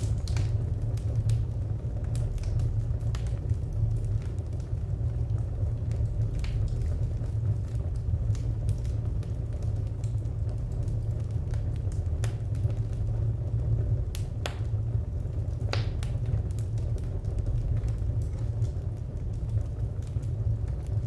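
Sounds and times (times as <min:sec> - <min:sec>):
sharp pops and snaps: 0:00.0 - 0:01.4, 0:14.1 - 0:14.8, 0:15.6 - 0:20.9
steady low rumble: 0:00.0 - 0:21.0
wood fire crackling: 0:00.0 - 0:21.0.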